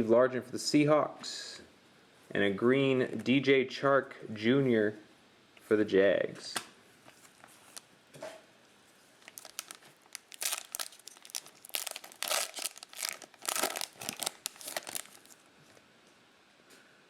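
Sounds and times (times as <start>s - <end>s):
card pack wrapper tearing and crinkling: 9.2s - 15.4s.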